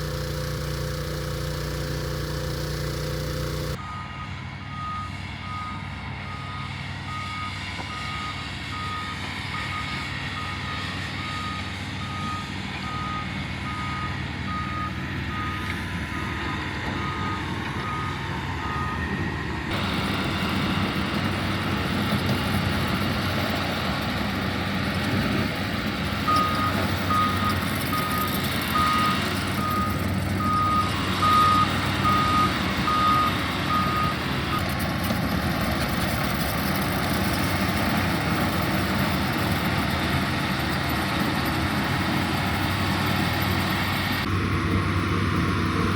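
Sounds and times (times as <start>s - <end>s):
earthmoving machine engine running: 0.0s - 3.8s, 8.9s - 45.9s
reversing alarm beeping: 0.0s - 20.2s, 26.3s - 34.8s.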